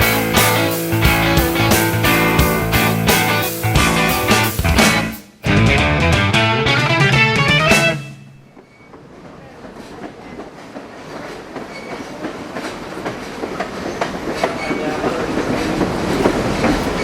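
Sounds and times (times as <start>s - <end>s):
train wheels clacking on rails: 8.5s - 17.0s.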